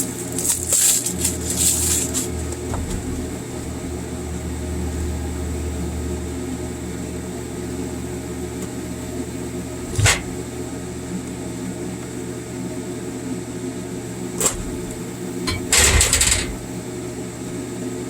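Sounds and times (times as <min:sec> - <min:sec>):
welding machine electrical hum: 0:00.0 - 0:18.0.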